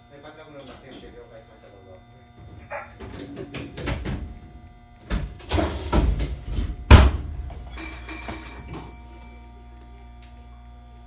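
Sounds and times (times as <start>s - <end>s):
electronic chime: 7.6s - 9.8s.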